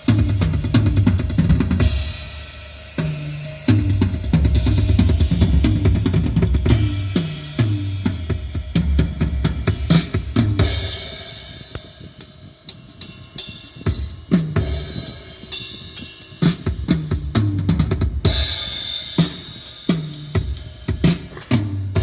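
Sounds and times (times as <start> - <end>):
cymbal crashes: 0.0 - 16.7
drum-heavy music with deep bass: 0.0 - 22.0.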